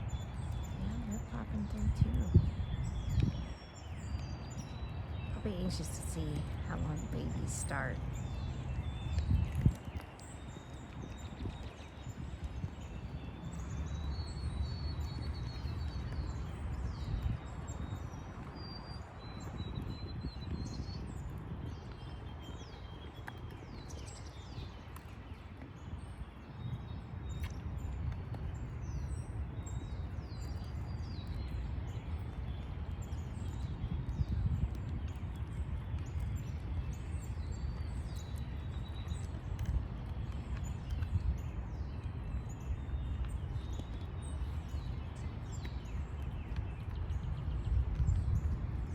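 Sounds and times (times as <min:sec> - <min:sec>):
low outdoor rumble: 0:00.0 - 0:11.4
songbirds chirping and whistling: 0:00.0 - 0:48.9.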